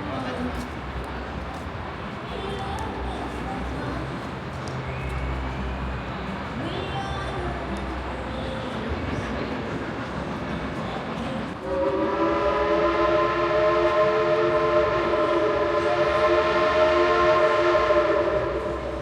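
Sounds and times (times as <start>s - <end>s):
steam train whistle: 11.6s - 19.0s.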